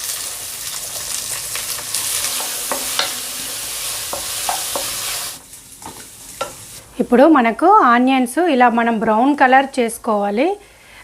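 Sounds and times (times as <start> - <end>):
onions sizzling in oil: 0.0 - 7.1.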